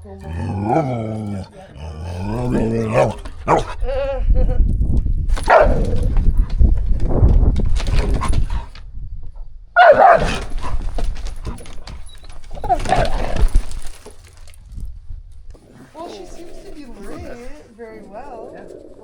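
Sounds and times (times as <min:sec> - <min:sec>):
dogs growling and barking: 0:00.0 - 0:04.0, 0:05.3 - 0:06.7, 0:07.7 - 0:08.8, 0:09.8 - 0:14.5
scuffling: 0:05.3 - 0:08.8, 0:09.8 - 0:14.8.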